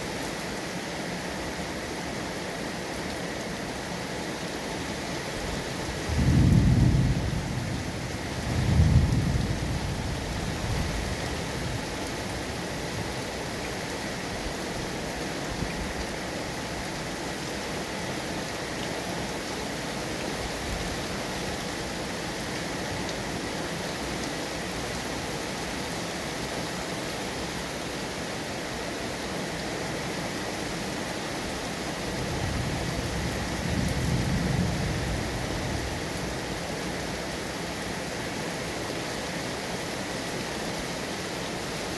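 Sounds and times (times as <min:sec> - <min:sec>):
steady rain falling: 0:00.0 - 0:41.9
low rumble of thunder: 0:06.0 - 0:11.8, 0:32.2 - 0:36.4.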